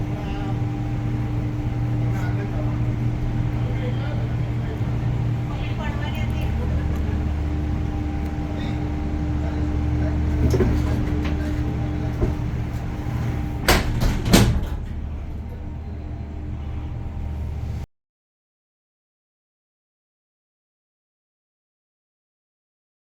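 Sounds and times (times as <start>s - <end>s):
cable car low hum: 0.0s - 17.9s.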